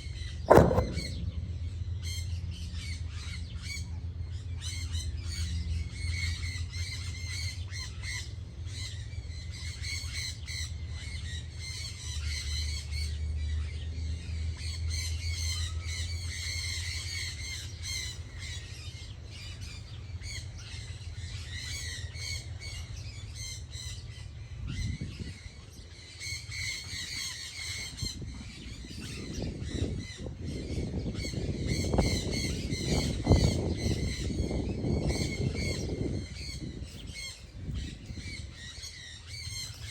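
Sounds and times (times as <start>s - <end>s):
steady low hum: 0.0s - 4.6s
loud low rumbling: 0.5s - 2.9s.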